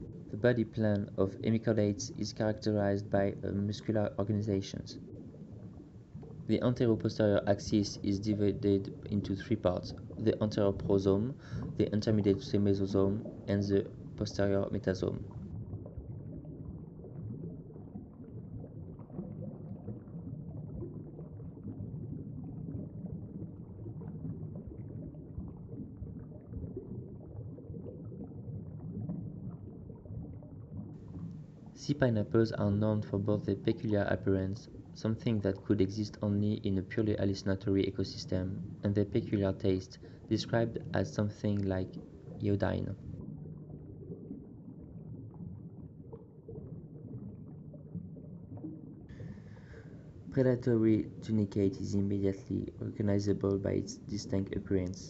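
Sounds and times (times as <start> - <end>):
faint bubbling: 0.0 - 55.0
low underwater rumble: 0.0 - 55.0
faint clicks: 4.7 - 6.5.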